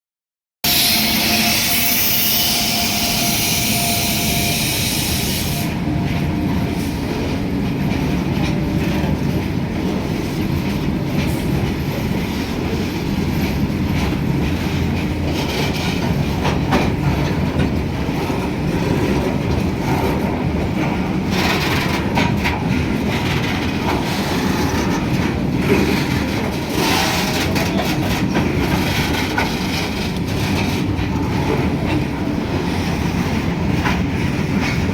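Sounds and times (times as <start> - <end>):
train rumbling on rails: 0.6 - 34.9
wheels clicking over rail joints: 13.3 - 34.9.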